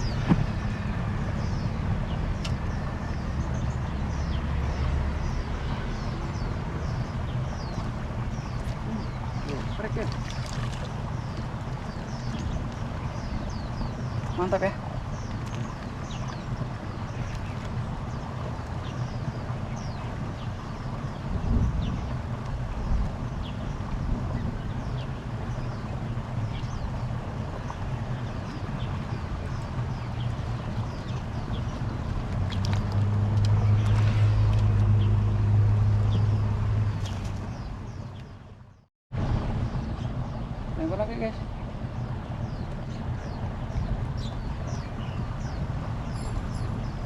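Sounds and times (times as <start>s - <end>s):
steady low rumble: 0.0s - 47.0s
bird chirping: 42.0s - 47.0s.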